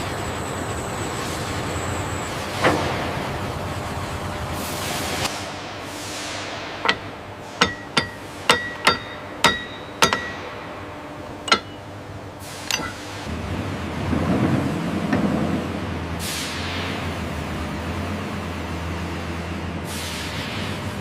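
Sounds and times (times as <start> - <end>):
hammer striking steel: 6.3 - 10.8, 11.4 - 12.0, 12.6 - 13.3.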